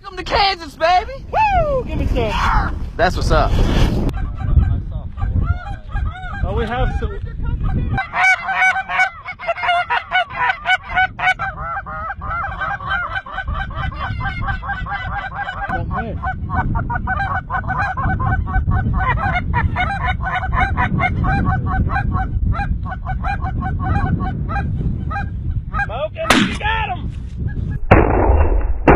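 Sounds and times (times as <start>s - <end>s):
geese honking: 7.9s - 25.9s
low rumble: 27.4s - 28.9s.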